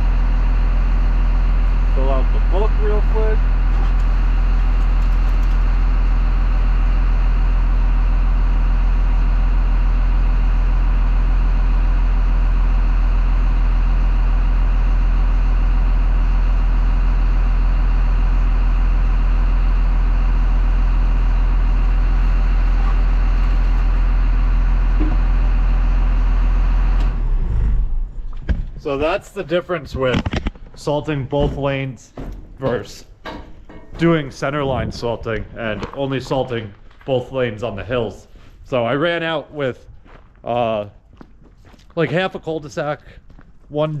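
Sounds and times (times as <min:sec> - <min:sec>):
truck diesel engine droning: 0:00.0 - 0:30.2.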